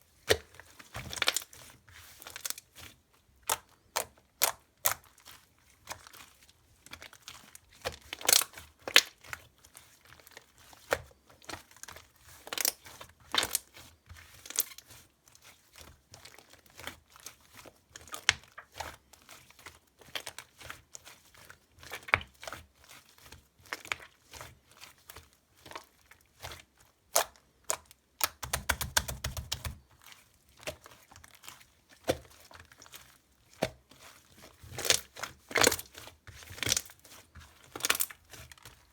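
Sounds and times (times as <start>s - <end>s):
slime squished by hand: 27.1s - 34.1s.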